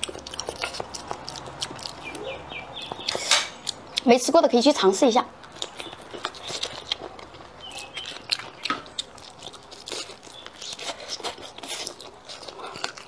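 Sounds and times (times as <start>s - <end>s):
chewing with clicks and crunches: 0.0s - 13.0s.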